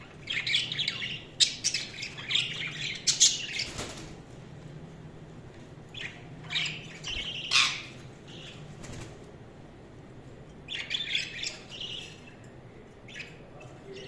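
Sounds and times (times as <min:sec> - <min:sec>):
budgerigars chirping and squawking: 0:00.0 - 0:04.1, 0:05.9 - 0:09.1, 0:10.6 - 0:12.5, 0:13.1 - 0:14.0.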